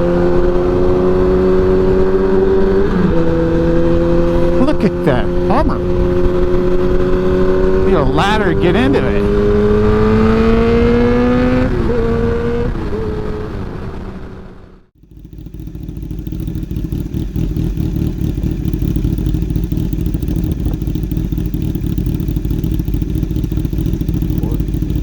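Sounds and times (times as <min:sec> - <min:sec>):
motorcycle engine revving: 0:00.0 - 0:25.0
riding noise low rumble: 0:11.7 - 0:25.0.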